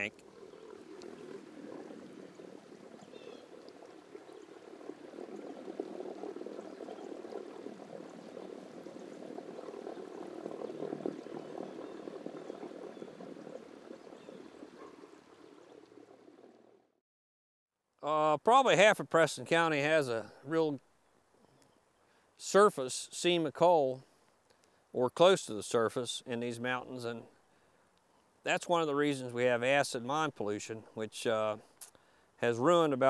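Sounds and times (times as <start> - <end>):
river water gurgling over rocks: 0.0 - 16.6.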